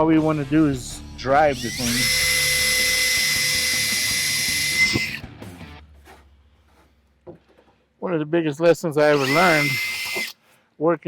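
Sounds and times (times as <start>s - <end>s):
electric drill whining: 1.5s - 5.2s, 9.1s - 10.4s.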